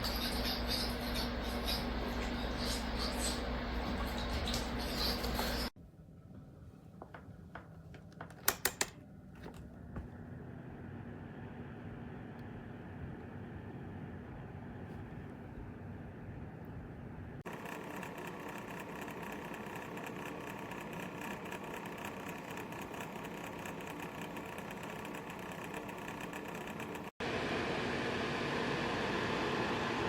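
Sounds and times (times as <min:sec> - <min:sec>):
heater fan whirring: 0:00.0 - 0:30.0.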